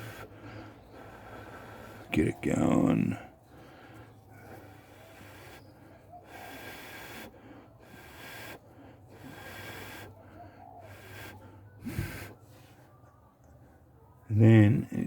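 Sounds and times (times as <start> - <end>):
person blowing on ember: 4.8 - 10.2, 10.8 - 12.5.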